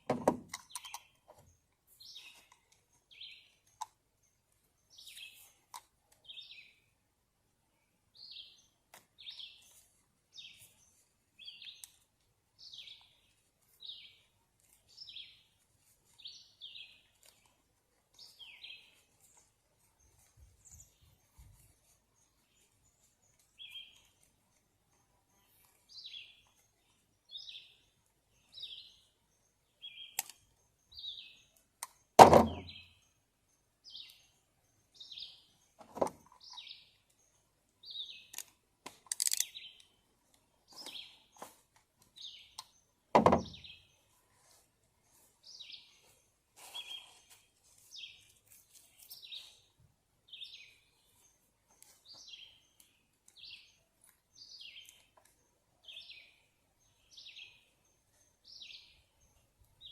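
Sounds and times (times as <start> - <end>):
bird chirping: 0.0 - 7.0, 7.8 - 59.9
loud thumps: 32.2 - 32.8, 43.2 - 43.6.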